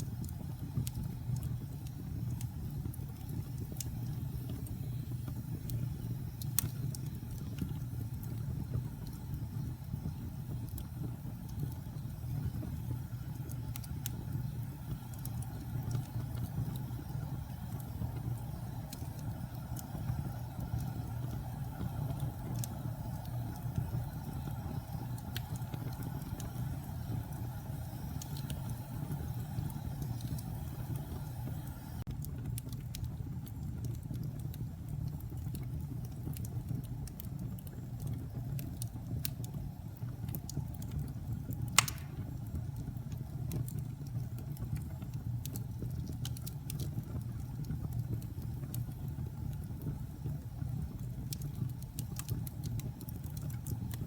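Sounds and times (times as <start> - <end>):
fire flames rumbling: 0.0 - 54.0
wood fire crackling and popping: 0.0 - 54.0.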